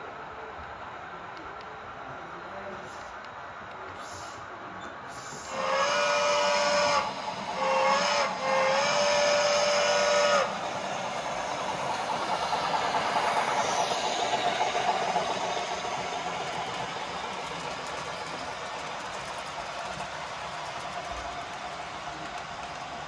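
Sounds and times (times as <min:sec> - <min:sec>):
steam locomotive running: 0:05.1 - 0:23.0
steam whistle blasts: 0:05.4 - 0:16.6.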